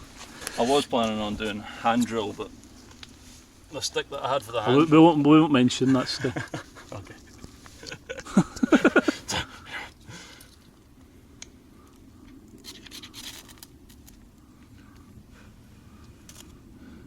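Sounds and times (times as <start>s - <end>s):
person laughing: 5.9s - 9.9s
faint scratches and clicks: 11.4s - 15.1s.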